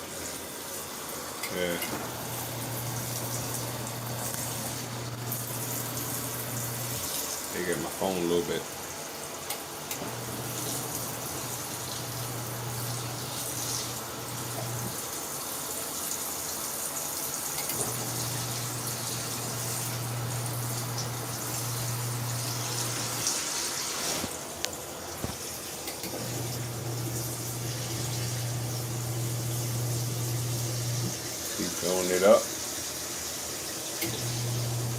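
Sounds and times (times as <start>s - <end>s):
washing machine motor humming: 0.0s - 34.9s
water pouring into tub: 1.6s - 8.4s, 10.2s - 15.3s.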